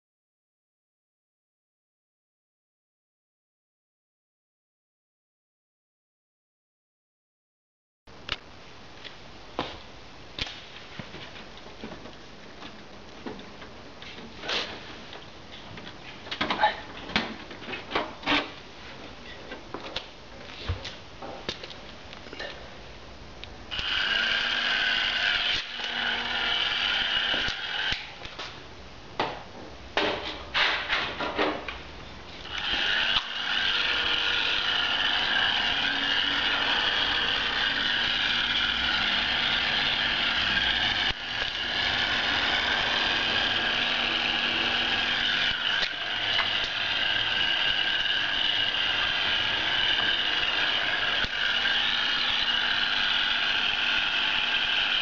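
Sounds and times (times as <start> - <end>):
hair dryer blowing: 23.8 - 28.1, 32.5 - 55.0.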